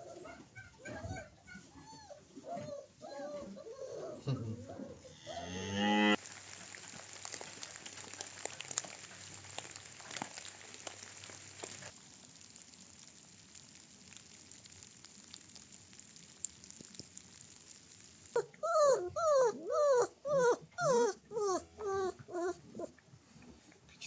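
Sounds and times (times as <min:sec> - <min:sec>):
rain pattering with drips: 0:06.2 - 0:24.0.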